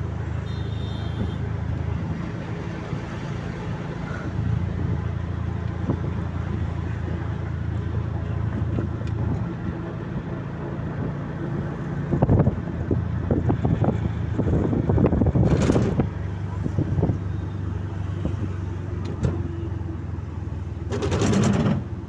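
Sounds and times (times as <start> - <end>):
road noise: 0.0 - 22.0
wind on microphone: 4.3 - 18.9.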